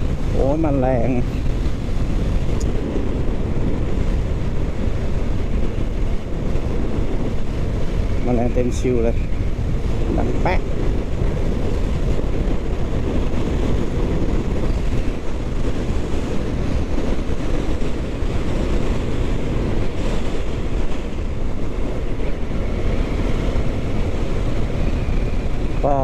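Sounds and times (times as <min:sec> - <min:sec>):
road noise: 0:00.0 - 0:26.0
wind rush on microphone: 0:00.0 - 0:26.0.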